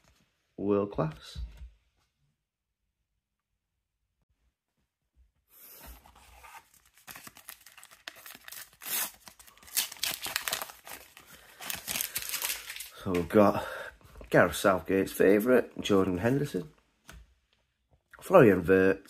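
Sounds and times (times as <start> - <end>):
sticker packet wrapper crinkling: 6.9 - 13.0.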